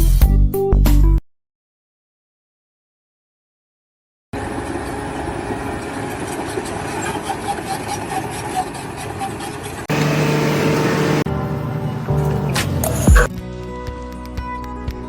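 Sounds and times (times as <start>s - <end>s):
machine engine running: 9.9s - 12.3s.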